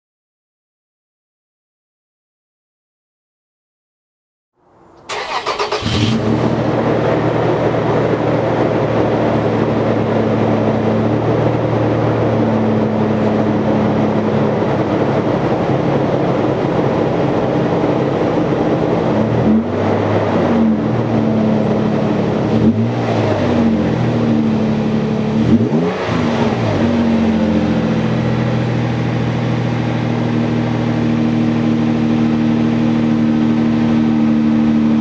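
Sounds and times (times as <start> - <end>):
engine idling: 4.8 - 19.3
engine cranking on starter: 4.9 - 6.8
engine revving: 5.0 - 15.2, 18.7 - 29.8.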